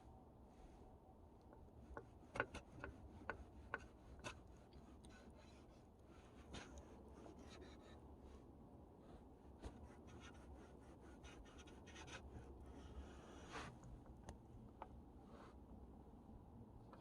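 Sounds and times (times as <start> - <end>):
soft scratching and rubbing: 1.7 - 14.3.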